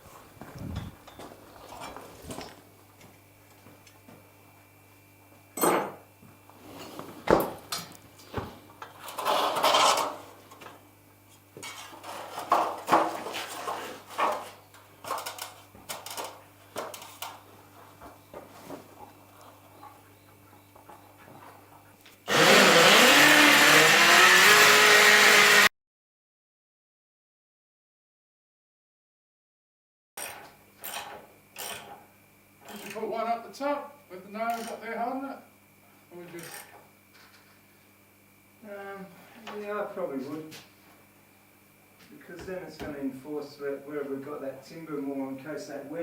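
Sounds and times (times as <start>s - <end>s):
electric drill whining: 22.3s - 25.7s.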